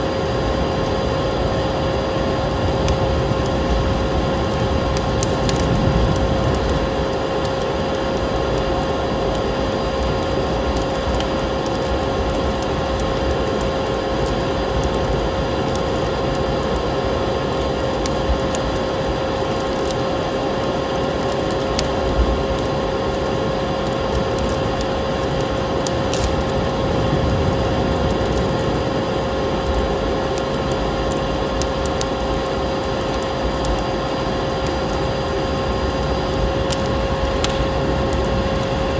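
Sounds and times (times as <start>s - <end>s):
mid-pitched whine: 0.0s - 38.9s
steady rushing noise: 0.0s - 38.9s
wood fire crackling and popping: 0.0s - 38.9s.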